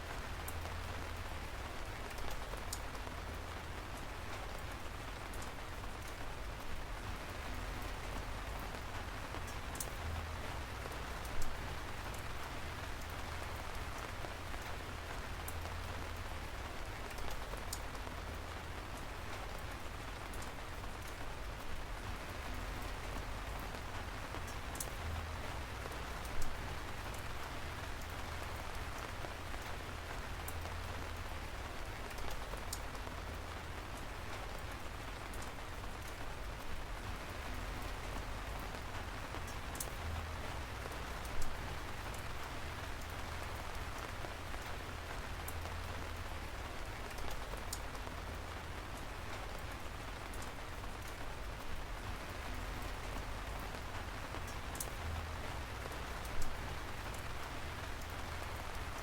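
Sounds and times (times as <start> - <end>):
raindrops ticking: 0.0 - 59.0
steady rain falling: 0.0 - 59.0.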